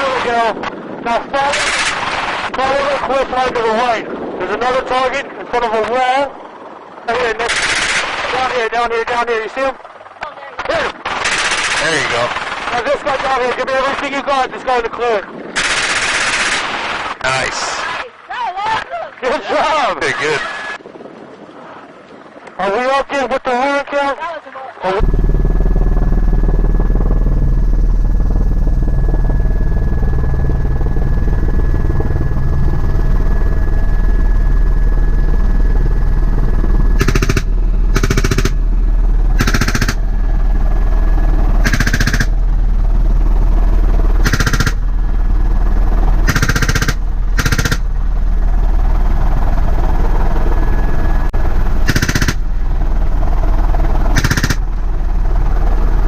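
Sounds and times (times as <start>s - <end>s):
helicopter rotor and engine drone: 0.0s - 56.0s
machine gun firing bursts: 11.1s - 13.3s, 15.6s - 17.1s, 37.0s - 38.6s, 39.4s - 40.1s, 41.6s - 42.4s, 44.2s - 44.8s, 46.2s - 47.9s, 51.8s - 52.5s, 54.1s - 54.7s.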